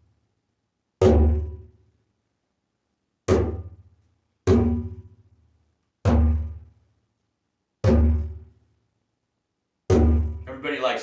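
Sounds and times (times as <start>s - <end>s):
hand drum booming bass strokes: 4.5s - 5.1s, 6.1s - 6.6s, 7.8s - 8.5s, 9.9s - 10.5s.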